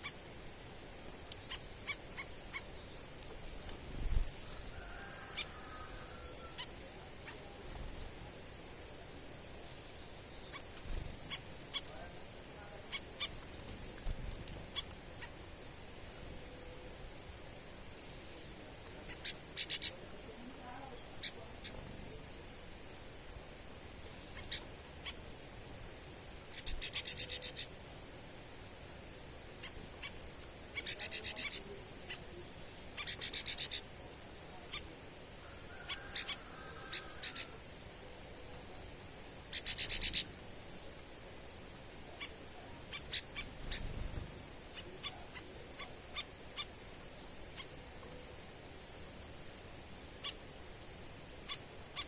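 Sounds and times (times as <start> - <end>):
bird trills: 0.0 - 3.0, 26.5 - 27.9, 29.6 - 48.4, 49.6 - 52.0
small birds chirping: 0.0 - 52.0.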